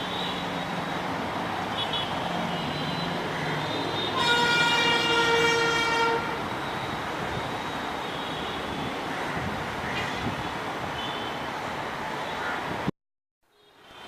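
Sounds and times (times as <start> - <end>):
road traffic noise: 0.0 - 14.0
train horn blast: 4.1 - 6.4.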